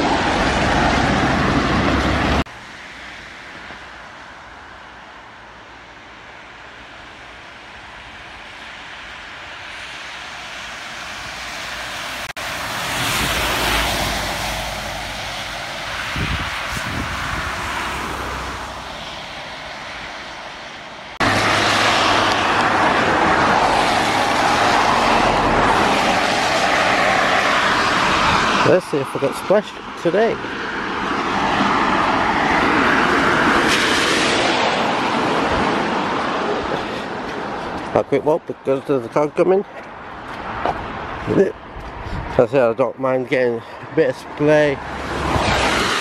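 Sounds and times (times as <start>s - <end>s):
loud steady rushing noise: 0.0s - 38.5s, 39.2s - 46.0s
car tyres hissing on wet road: 8.5s - 28.7s, 44.8s - 46.0s.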